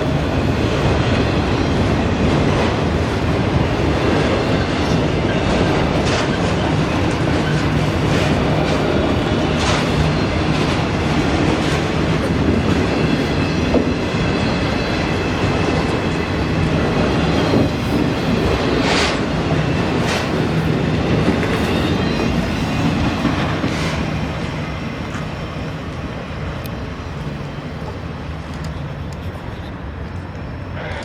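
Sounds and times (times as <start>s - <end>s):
wheels clicking over rail joints: 0.0s - 19.3s
train rumbling past: 0.0s - 31.0s.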